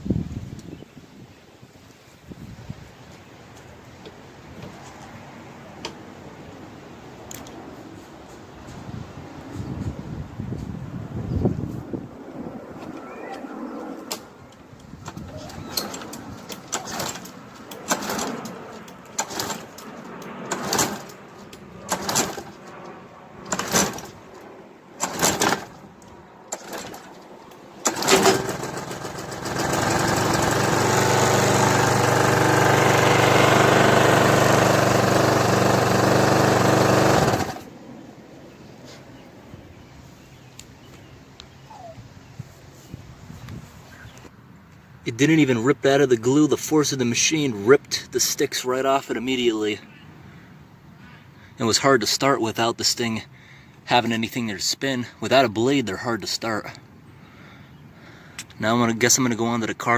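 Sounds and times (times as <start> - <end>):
lawn mower pull-start cranking: 15.0 - 21.2, 21.8 - 22.7, 23.4 - 24.3, 25.0 - 25.9, 26.5 - 37.7
lawn mower engine running: 15.0 - 22.7, 23.4 - 24.4, 25.0 - 37.8.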